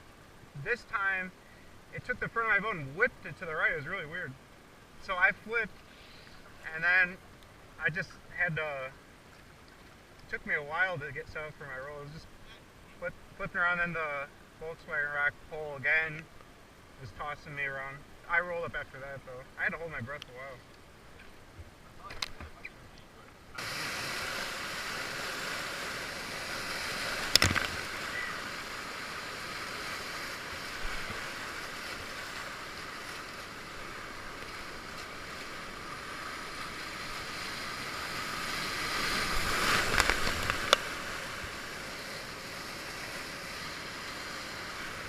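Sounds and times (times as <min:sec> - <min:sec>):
river rapids rushing: 0:23.5 - 0:45.0
water splashing: 0:23.5 - 0:45.0.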